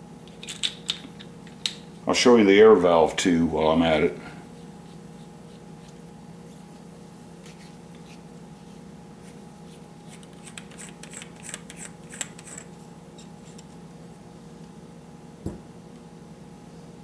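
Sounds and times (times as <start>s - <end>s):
steady low hum: 0.0s - 17.0s
metal parts clicking: 0.3s - 1.8s, 10.3s - 12.7s.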